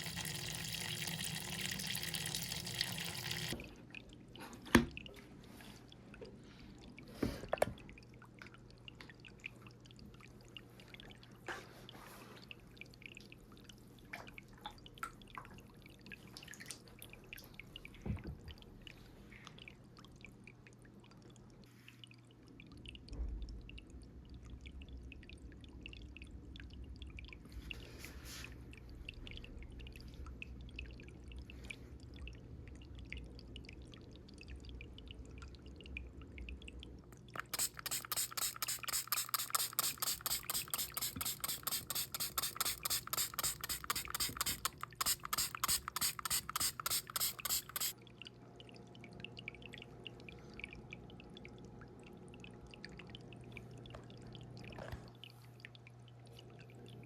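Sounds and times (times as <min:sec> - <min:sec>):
spray bottle misting: 0:37.4 - 0:48.0.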